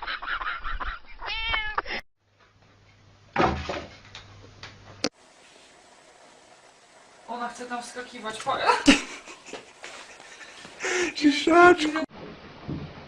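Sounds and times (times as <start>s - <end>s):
cat meowing: 1.2s - 1.8s
loud rustle or thump: 3.4s - 4.0s.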